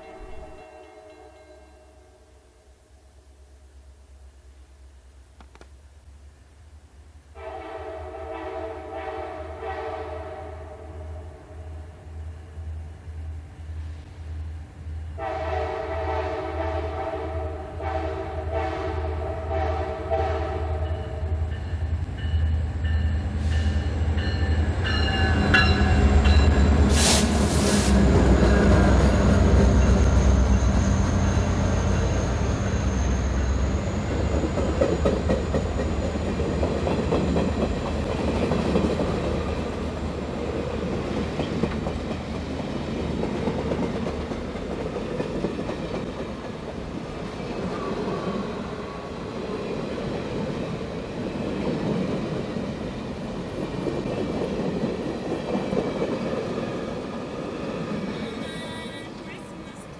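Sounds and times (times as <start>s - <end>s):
train rolling: 0.0s - 1.6s, 20.2s - 59.9s
locomotive air horn: 7.4s - 11.5s, 15.2s - 20.9s.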